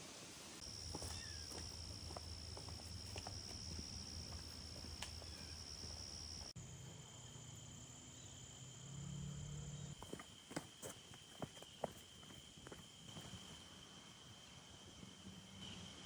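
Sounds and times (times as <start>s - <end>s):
insects trilling: 0.5s - 16.0s
faint ticks: 4.8s - 5.3s.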